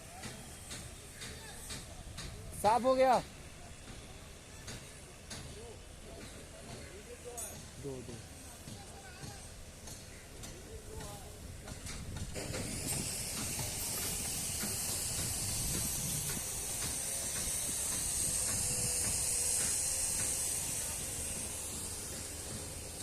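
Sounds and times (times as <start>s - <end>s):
pressurized jet hissing: 10.6s - 23.0s.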